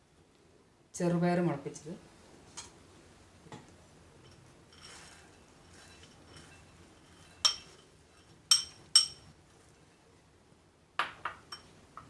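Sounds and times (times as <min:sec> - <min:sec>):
dishware clinking: 0:04.2 - 0:09.3, 0:11.0 - 0:11.7.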